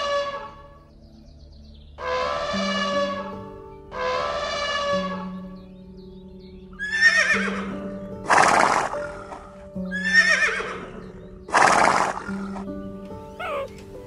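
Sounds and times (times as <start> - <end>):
background music with held notes: 0.0 - 14.0
horse neighing: 6.8 - 7.7, 8.3 - 10.9, 13.4 - 13.8.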